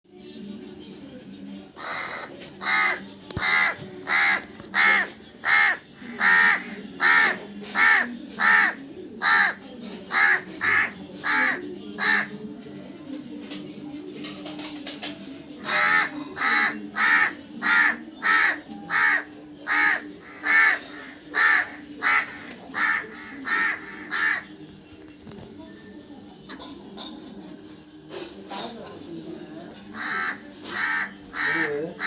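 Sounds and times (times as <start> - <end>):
crow cawing: 1.8 - 12.3, 15.6 - 24.5, 29.9 - 32.0.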